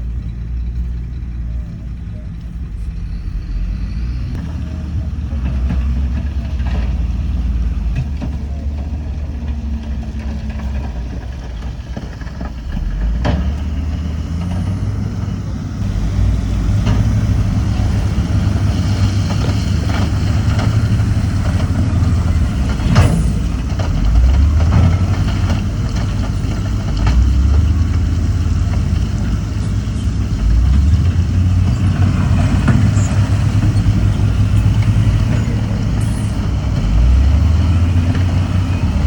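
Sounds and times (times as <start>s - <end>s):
heavy diesel engines running: 0.0s - 39.0s.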